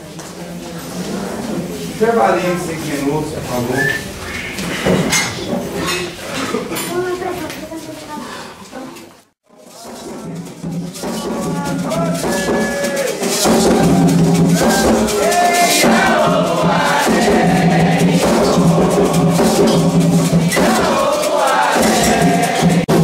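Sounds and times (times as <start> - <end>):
hand drums: 9.6 - 23.0
call-and-response singing: 11.2 - 23.0.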